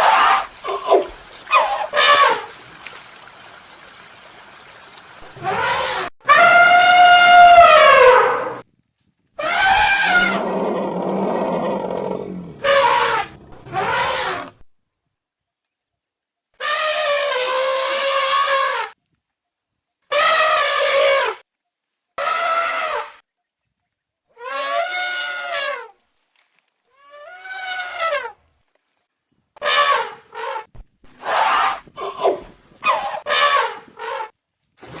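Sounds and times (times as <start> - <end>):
elephant trumpeting: 0.0 - 2.5, 5.4 - 8.6, 9.4 - 14.5, 24.4 - 25.9, 27.0 - 28.3, 29.6 - 34.3
elephant calls: 5.4 - 8.6, 9.4 - 14.5.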